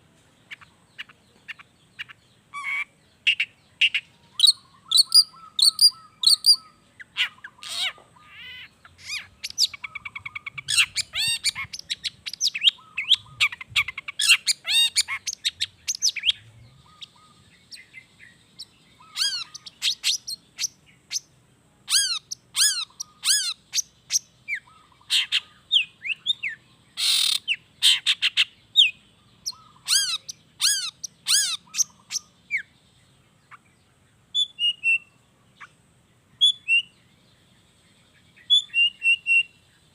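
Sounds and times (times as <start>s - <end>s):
shrike singing: 1.3s - 32.8s.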